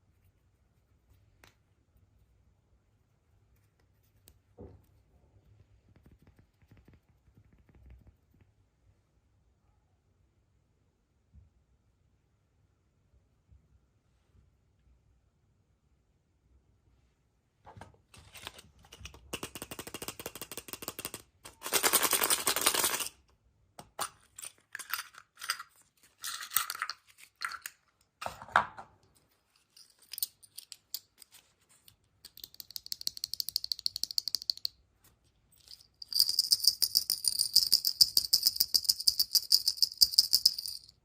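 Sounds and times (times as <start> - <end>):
small pieces rattling in plastic container: 19.3 - 23.2, 24.3 - 27.8.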